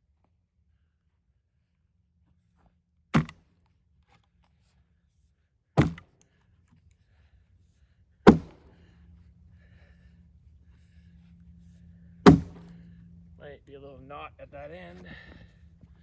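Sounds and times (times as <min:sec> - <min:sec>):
wedge blows cracking log: 0:03.2 - 0:03.4, 0:05.8 - 0:06.1, 0:08.3 - 0:08.7, 0:12.3 - 0:12.6.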